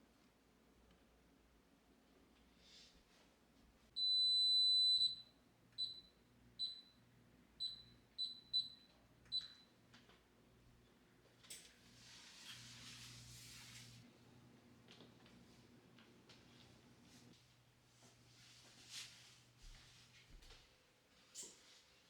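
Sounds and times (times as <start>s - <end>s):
appliance control panel beeps: 4.0s - 9.8s.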